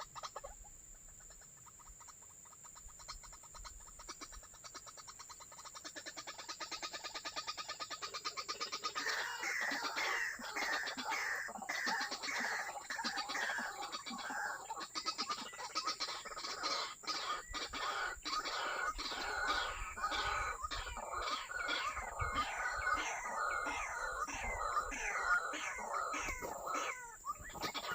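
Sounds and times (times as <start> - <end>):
waterhen calling: 8.0 - 27.9.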